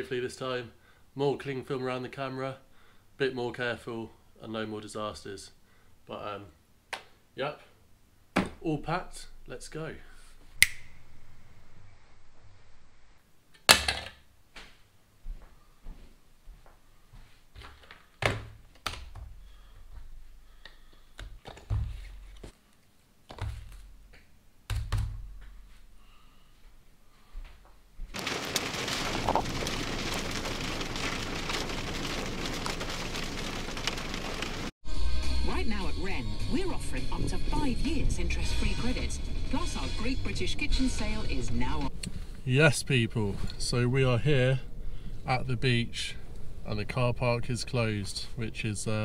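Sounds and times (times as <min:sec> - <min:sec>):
heavy rain: 0:28.2 - 0:34.7.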